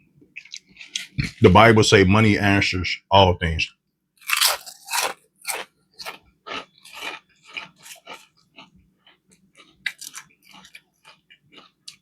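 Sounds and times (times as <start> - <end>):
crunchy chewing: 0.4 - 1.4, 4.2 - 12.0.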